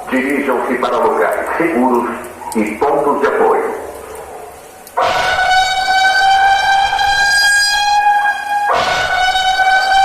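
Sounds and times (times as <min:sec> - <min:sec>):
warning siren steady tone: 0:04.1 - 0:10.0.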